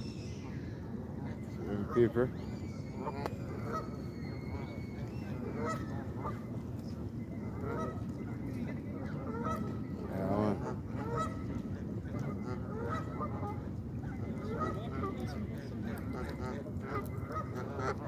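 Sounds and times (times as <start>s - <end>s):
flock of birds calling: 0.0s - 6.6s
low background noise: 0.0s - 18.0s.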